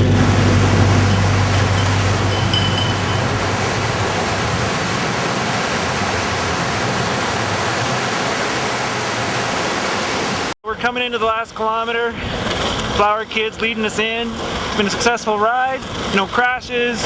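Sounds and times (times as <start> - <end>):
low hum: 0.0 - 8.1
wind over microphone: 0.0 - 9.4
skate wheels rolling on pavement: 11.1 - 17.0.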